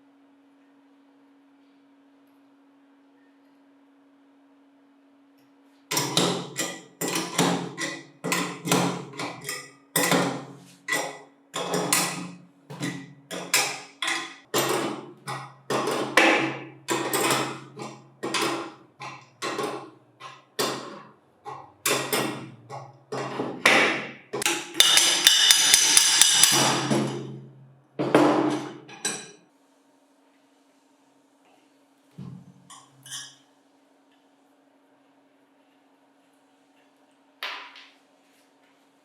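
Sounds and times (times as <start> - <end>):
hammer striking metal: 23.7 - 27.0.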